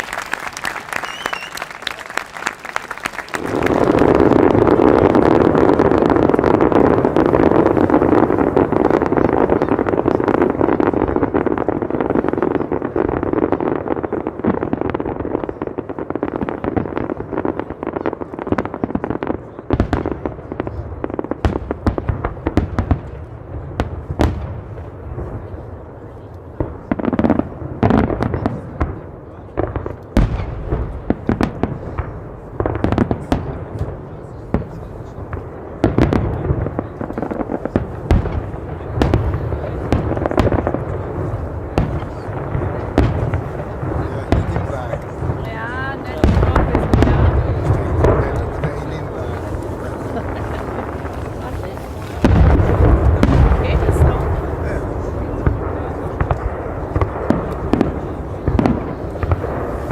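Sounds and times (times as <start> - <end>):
fireworks bangs: 0.0 - 59.9
fireworks crackling: 0.0 - 59.9
low booming: 30.2 - 59.9.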